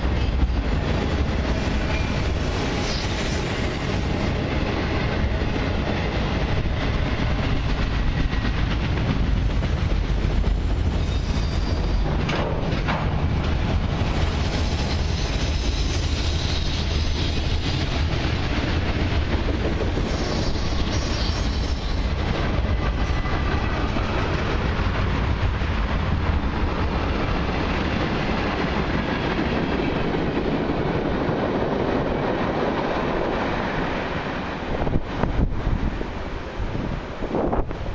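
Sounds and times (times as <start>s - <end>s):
train wheels rumbling on rail: 0.0s - 37.9s
clatter over rail joints: 4.6s - 20.2s.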